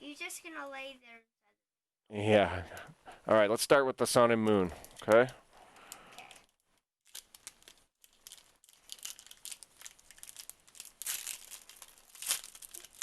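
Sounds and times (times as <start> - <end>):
foil wrapper crinkling and tearing: 5.8 - 13.0.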